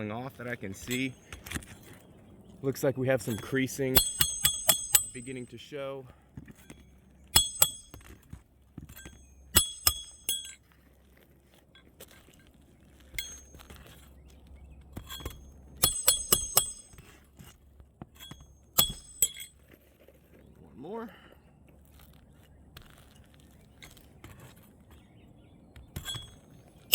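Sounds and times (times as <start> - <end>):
hatchet hammering roofing nails: 3.9 - 5.4, 6.4 - 10.6, 15.0 - 17.5, 18.2 - 19.5.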